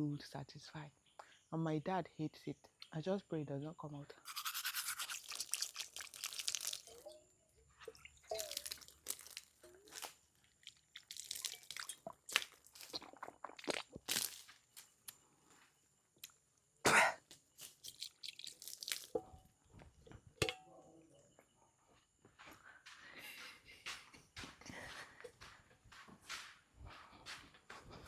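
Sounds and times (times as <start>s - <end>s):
toothbrush scrubbing teeth: 4.3s - 7.0s, 8.3s - 13.1s, 17.6s - 19.1s
faint throat or mouth noises: 11.7s - 14.2s.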